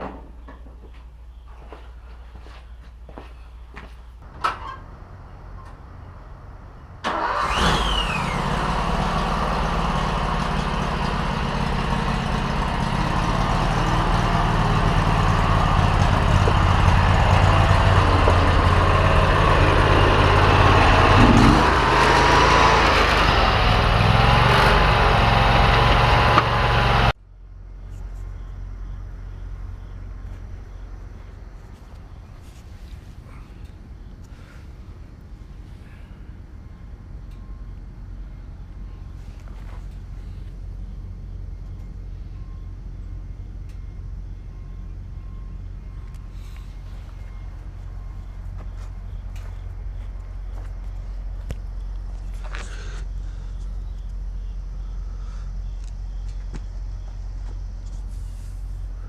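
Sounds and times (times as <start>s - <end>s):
lawn tractor engine running: 7.0s - 27.2s.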